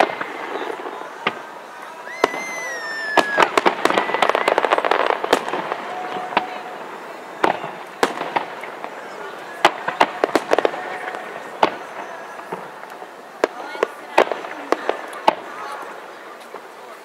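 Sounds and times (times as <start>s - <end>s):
fireworks bangs and crackling: 0.0s - 17.0s
firework whistle falling in pitch: 2.1s - 4.7s.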